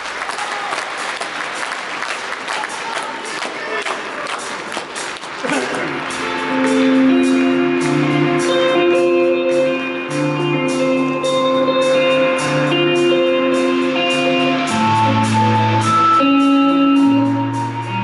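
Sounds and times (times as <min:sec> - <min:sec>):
electric guitar chords: 0:05.4 - 0:18.0
bass line: 0:05.7 - 0:18.0
steady ticking beat: 0:05.8 - 0:18.0.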